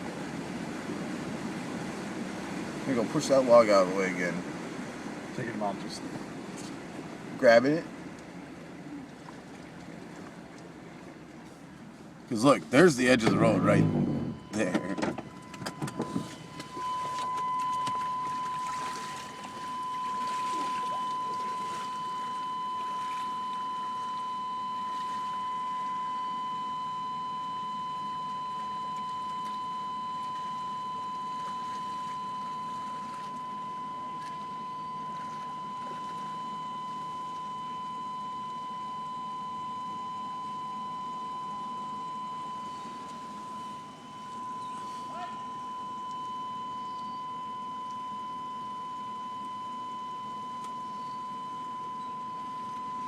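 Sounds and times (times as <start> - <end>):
truck wading through floodwater: 0.0 - 53.0
high-pitched electronic tone: 13.2 - 53.0.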